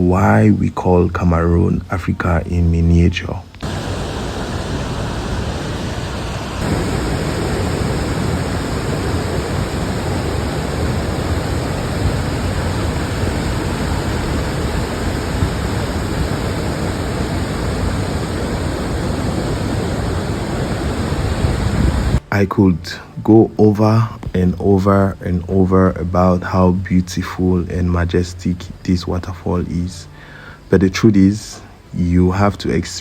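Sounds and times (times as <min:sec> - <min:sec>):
waterfall rushing: 0:03.6 - 0:22.2.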